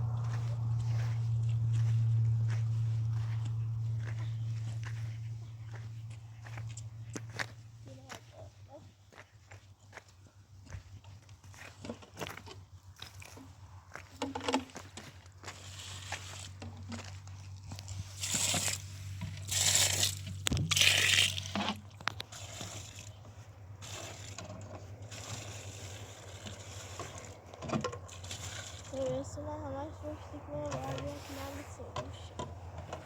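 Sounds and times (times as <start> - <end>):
steady low hum: 0.0 - 9.2, 22.9 - 33.0
scraping and rustling: 14.2 - 33.0.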